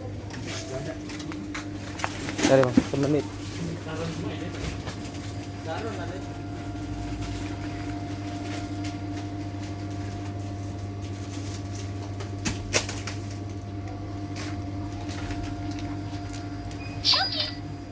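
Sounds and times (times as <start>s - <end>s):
electrical machine hum: 0.0s - 17.9s.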